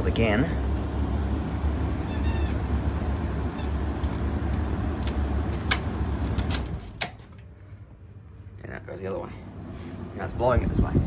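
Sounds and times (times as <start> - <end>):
exhaust fan humming: 0.0 - 11.0
fan squeak: 1.6 - 7.5.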